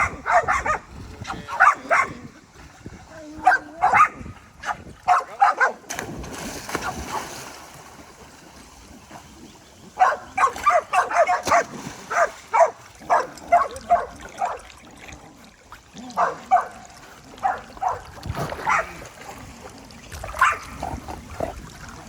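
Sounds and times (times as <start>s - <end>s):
dog barking: 0.0s - 2.2s, 3.4s - 5.8s, 10.0s - 14.6s, 16.2s - 16.8s, 17.4s - 18.0s, 18.6s - 19.0s, 20.4s - 20.7s.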